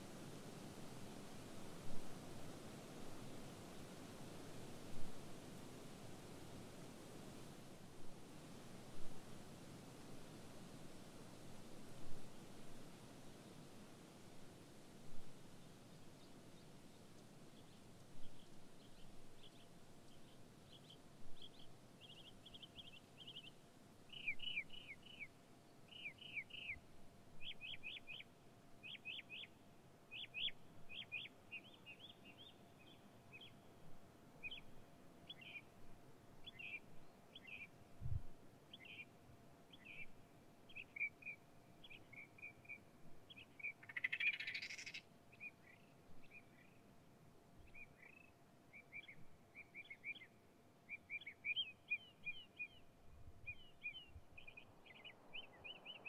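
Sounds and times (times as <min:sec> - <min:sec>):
small birds chirping: 0:15.6 - 0:33.7, 0:39.7 - 0:46.9, 0:47.6 - 0:56.0.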